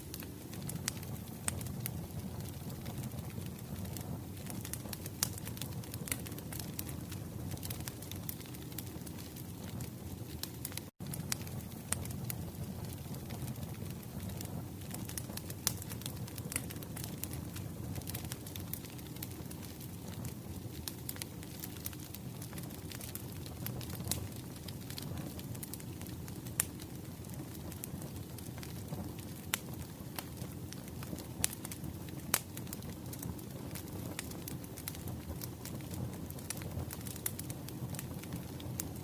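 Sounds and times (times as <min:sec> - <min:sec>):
wood fire crackling: 0:00.0 - 0:39.0.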